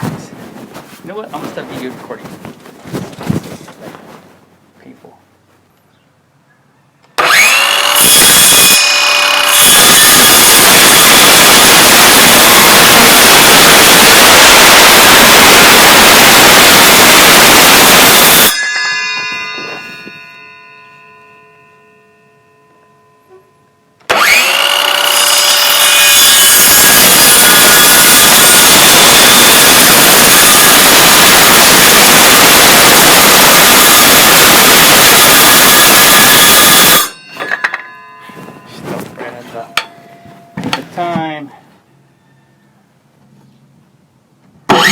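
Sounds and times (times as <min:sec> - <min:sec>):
power saw cutting plywood: 0:07.2 - 0:18.6, 0:24.1 - 0:37.6, 0:44.7 - 0:44.9.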